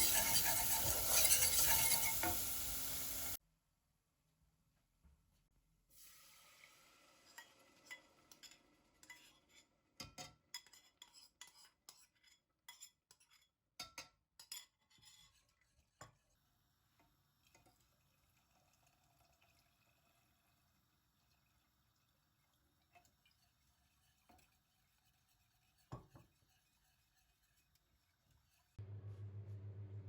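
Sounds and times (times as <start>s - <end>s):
utensils clinking against dishes: 0.0s - 2.8s.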